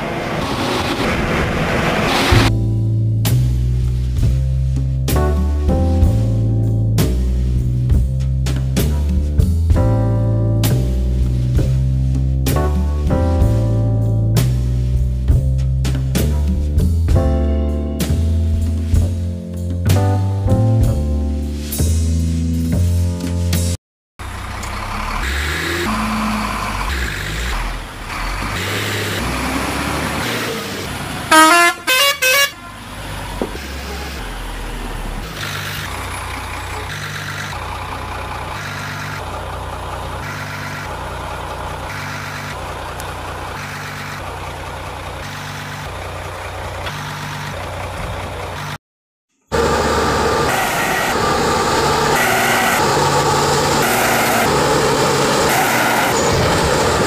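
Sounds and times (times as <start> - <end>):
vehicle engine running: 24.2 - 48.8, 49.5 - 57.0
short horn honks: 31.3 - 32.8.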